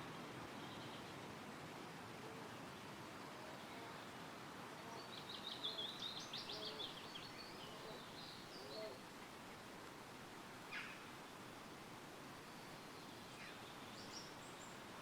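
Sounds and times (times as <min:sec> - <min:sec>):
songbird singing: 0:00.0 - 0:01.2, 0:02.6 - 0:09.7, 0:10.6 - 0:11.5, 0:12.3 - 0:15.0
wind rustling through trees: 0:00.0 - 0:15.0.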